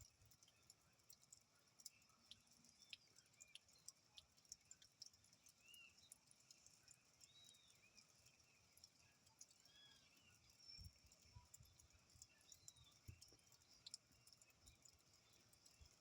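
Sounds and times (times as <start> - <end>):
rain dripping: 0.0 - 16.0
bird chirps: 9.6 - 13.9.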